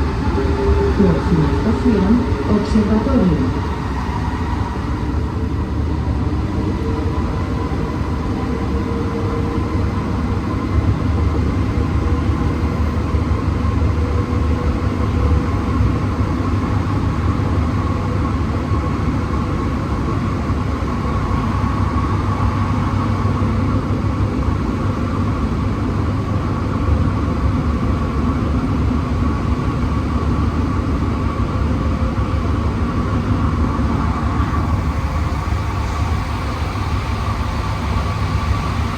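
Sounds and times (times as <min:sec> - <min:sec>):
faint whining tones: 0:00.0 - 0:10.6
metro train rumble: 0:00.0 - 0:38.9.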